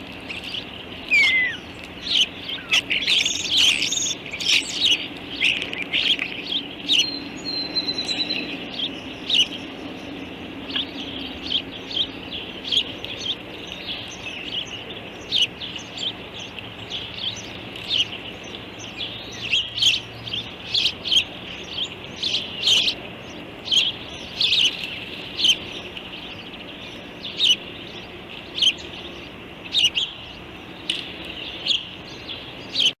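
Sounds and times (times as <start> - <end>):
bird chirping: 0.2 - 33.0.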